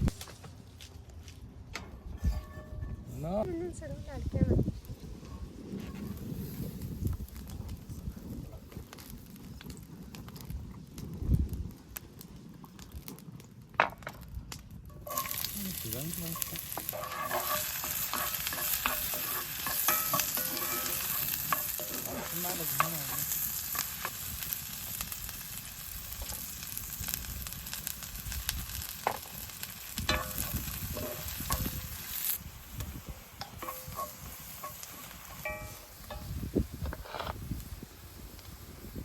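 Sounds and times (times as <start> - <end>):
utensil scraping and knocking pan: 15.0 - 24.2, 30.1 - 31.8, 33.4 - 37.4
food sizzling in a pan: 15.0 - 39.0.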